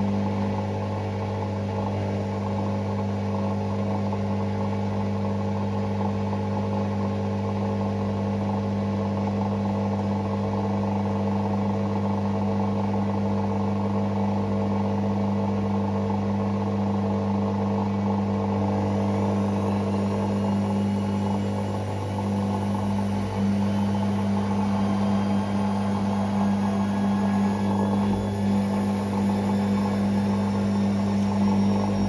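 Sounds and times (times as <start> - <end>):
washing machine motor humming: 12.4 - 32.0.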